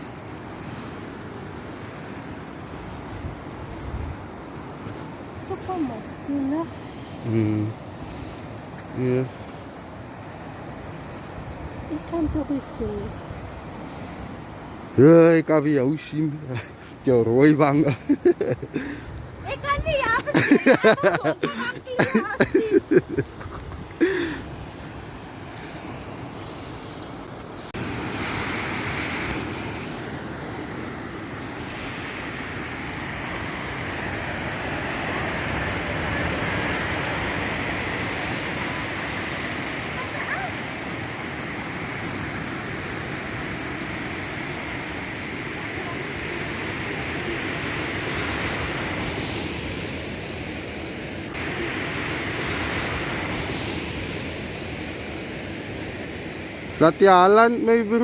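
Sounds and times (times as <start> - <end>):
ocean surf: 0.0 - 58.0
wind: 0.0 - 58.0.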